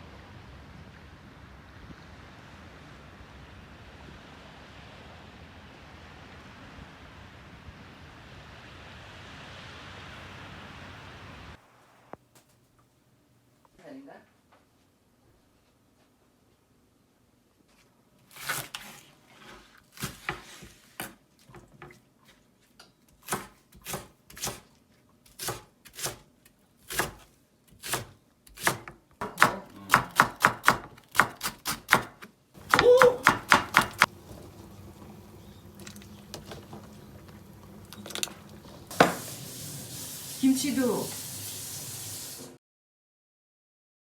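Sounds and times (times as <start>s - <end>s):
faint steady hiss: 0.0s - 18.3s, 32.3s - 42.6s
knife chopping on cutting board: 23.2s - 24.6s, 25.3s - 34.1s.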